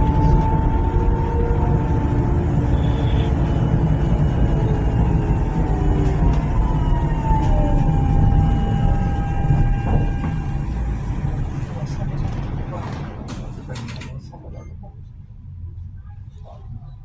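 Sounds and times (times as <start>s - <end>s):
electric motor whine: 0.0s - 11.6s
tram wheels rumbling: 0.0s - 17.0s.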